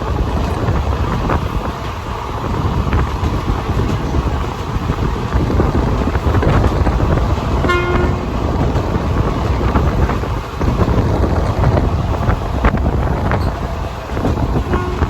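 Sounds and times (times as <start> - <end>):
train rumble with rushing air: 0.0 - 15.0
train horn toot: 7.6 - 8.3, 14.6 - 15.0.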